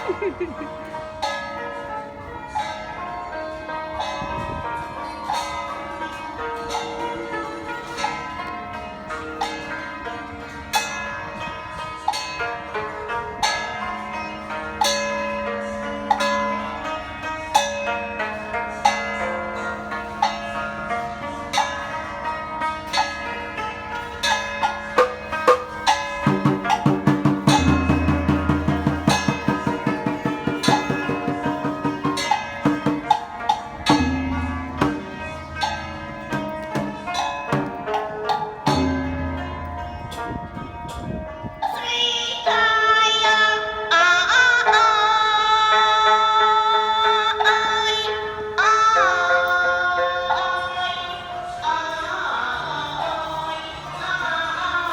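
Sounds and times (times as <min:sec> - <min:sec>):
pitched instruments ensemble: 0:23.9 - 0:40.9
gongs bells and drums struck: 0:24.2 - 0:41.0
fast low strikes: 0:25.0 - 0:37.9.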